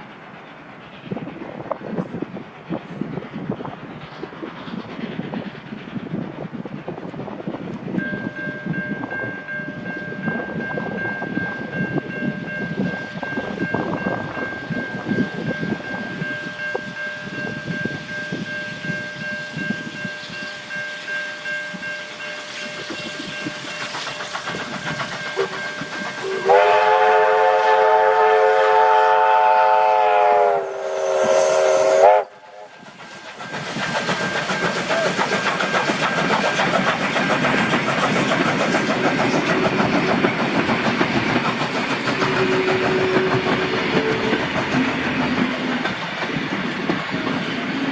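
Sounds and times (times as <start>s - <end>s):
steam locomotive clatter: 0.0s - 47.9s
steam whistle blast: 26.2s - 32.8s, 42.3s - 44.4s.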